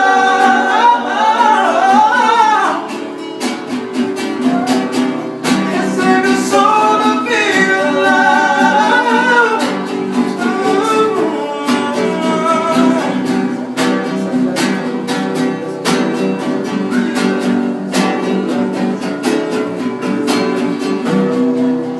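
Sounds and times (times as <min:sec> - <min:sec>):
person singing: 0:00.0 - 0:03.0, 0:04.3 - 0:14.8
acoustic guitar strumming: 0:00.0 - 0:21.9.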